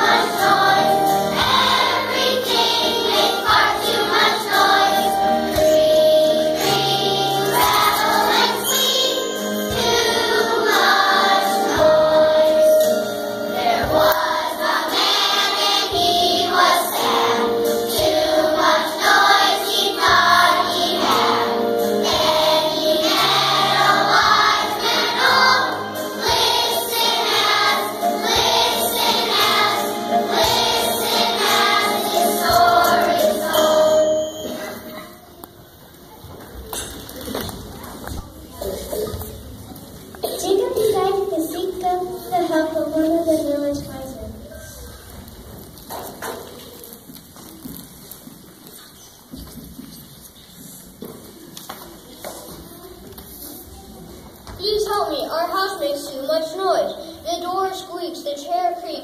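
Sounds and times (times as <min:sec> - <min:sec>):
children's choir singing: 0:00.0 - 0:35.4
instrumental accompaniment: 0:00.0 - 0:35.4.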